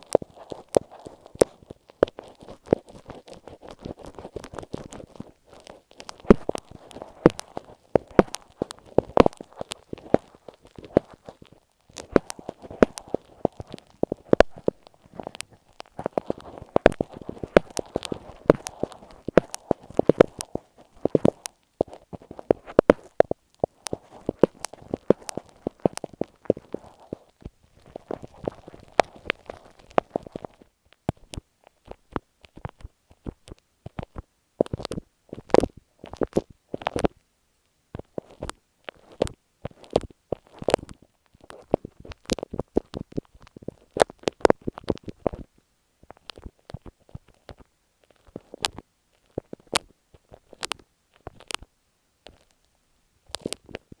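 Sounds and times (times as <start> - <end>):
glue stick rubbing on microphone: 0.0 - 36.3.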